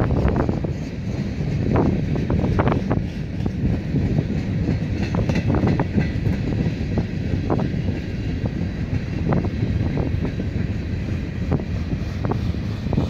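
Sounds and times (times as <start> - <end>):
freight train low rumble: 0.0 - 13.0
wind on microphone: 0.0 - 13.0.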